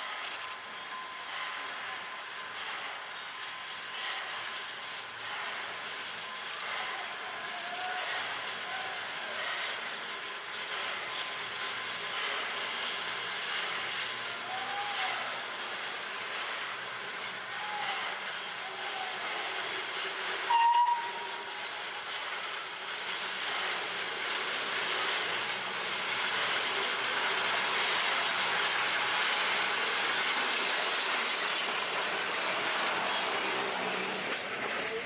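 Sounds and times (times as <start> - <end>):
steam hissing: 7.7 - 35.0
steam locomotive whistle blast: 20.5 - 21.6.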